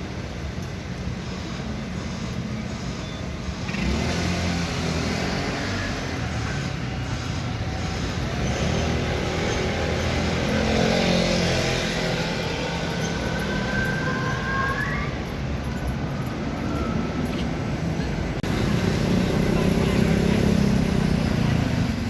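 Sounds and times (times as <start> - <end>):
vehicles passing: 0.0 - 22.0
rising whine: 6.2 - 18.4.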